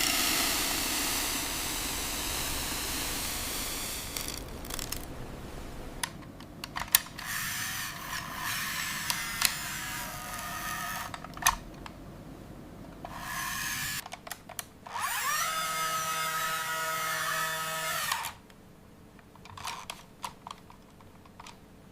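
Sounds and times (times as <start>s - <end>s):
toy electric motor whirring: 0.0s - 5.0s, 7.2s - 11.2s, 13.0s - 14.0s, 14.9s - 18.4s.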